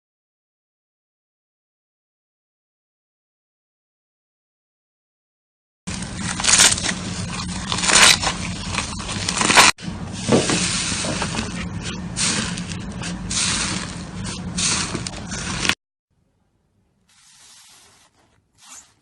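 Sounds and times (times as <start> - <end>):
slime squishing: 5.9 - 15.8.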